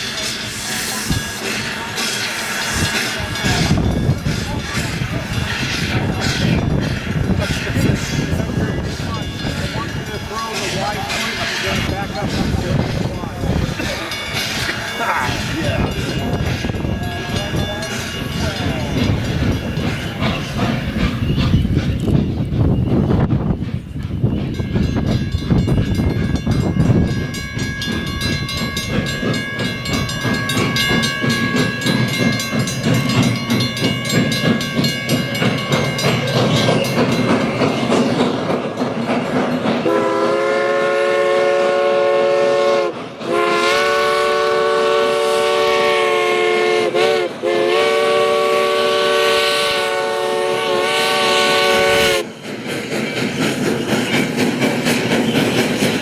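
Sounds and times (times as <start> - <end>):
train running rhythmically: 0.0 - 56.0
steam locomotive whistle: 39.8 - 52.3.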